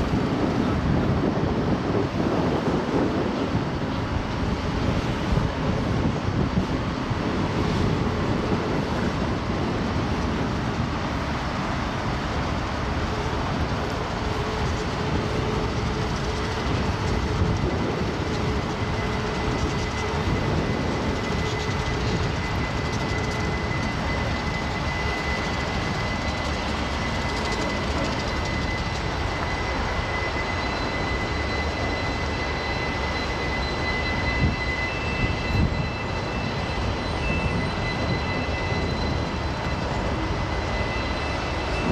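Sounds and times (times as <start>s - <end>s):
freight train cars rumbling: 0.0s - 41.9s
wheel flange squeal: 13.1s - 41.9s.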